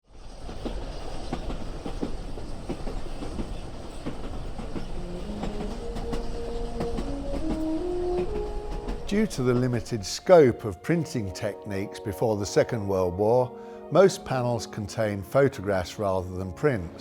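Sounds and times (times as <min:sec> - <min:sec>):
train rumbling on rails: 0:00.0 - 0:13.2
wheels clicking over track: 0:00.1 - 0:10.0
music of held notes: 0:04.9 - 0:17.0.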